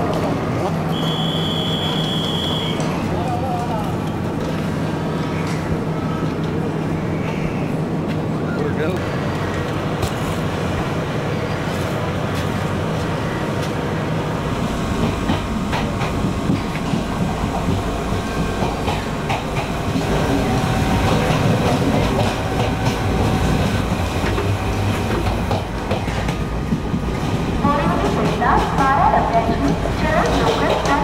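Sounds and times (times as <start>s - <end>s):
train rumble: 0.0s - 31.0s
wheels clacking over rail joints: 14.9s - 31.0s.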